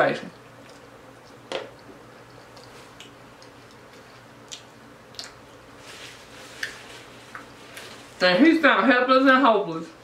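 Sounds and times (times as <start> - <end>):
wet mouth clicks chewing: 2.2 - 5.4.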